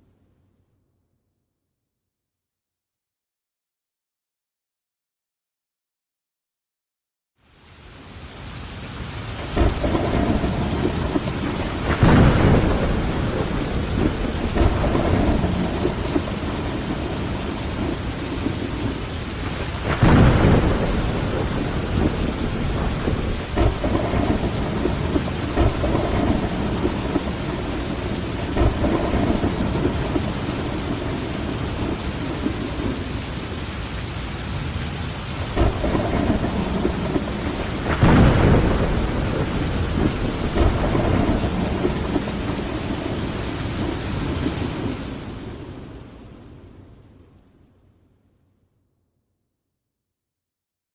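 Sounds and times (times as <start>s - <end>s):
rain on a window: 7.4s - 48.0s
rolling thunder: 9.4s - 46.9s.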